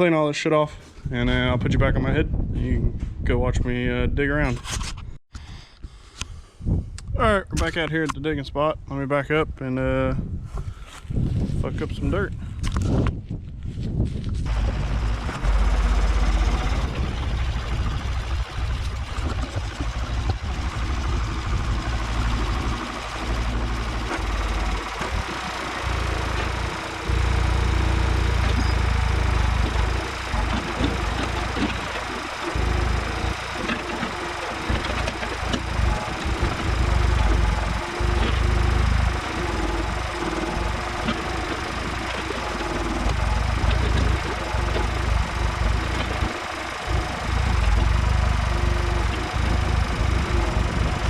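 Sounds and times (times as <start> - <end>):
tractor engine running: 14.5 - 51.0.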